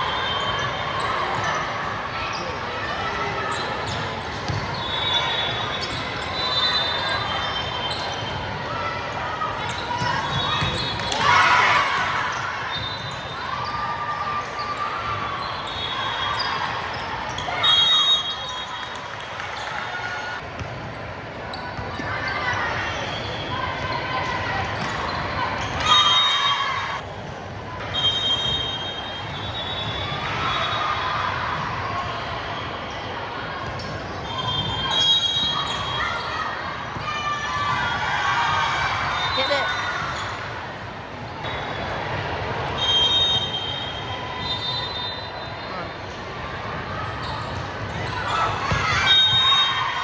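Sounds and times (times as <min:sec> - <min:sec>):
sneaker squeaks on court: 0:02.3 - 0:08.5, 0:09.7 - 0:13.8
shrill whistle: 0:04.7 - 0:08.2, 0:15.4 - 0:16.7, 0:17.3 - 0:19.1, 0:25.8 - 0:27.0, 0:27.8 - 0:31.0, 0:34.2 - 0:36.4, 0:42.8 - 0:45.8, 0:48.2 - 0:50.0.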